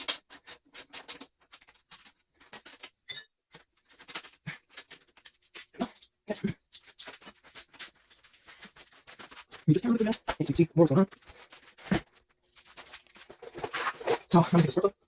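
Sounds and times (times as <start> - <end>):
hand tools clicking and scraping: 0.0 - 15.0
metal clink: 2.5 - 4.3, 5.2 - 7.3.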